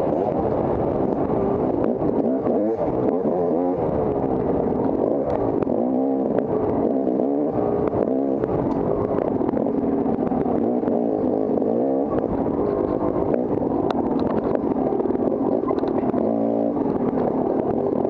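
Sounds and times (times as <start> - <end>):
dirt bike engine revving: 1.0 - 18.0
clicks and clatter: 4.3 - 18.0.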